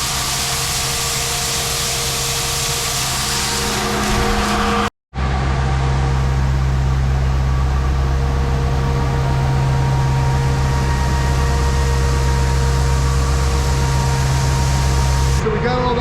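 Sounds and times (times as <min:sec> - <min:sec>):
grain auger humming: 0:05.6 - 0:15.5.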